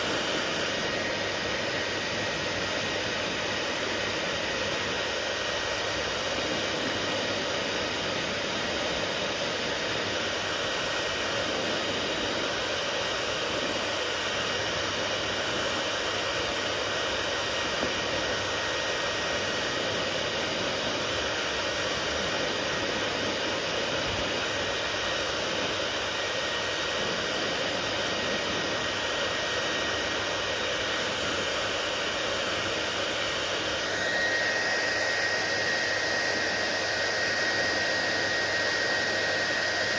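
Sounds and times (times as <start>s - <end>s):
hair dryer blowing air: 0.0s - 39.9s.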